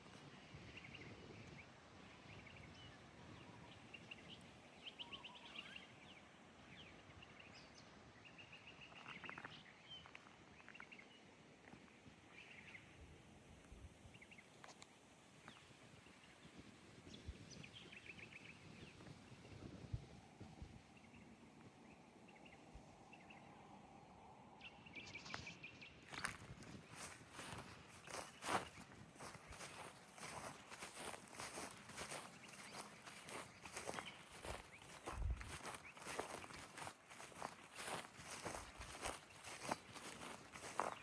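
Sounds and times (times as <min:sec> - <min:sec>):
birds chirping and trilling: 0:27.0 - 0:41.0.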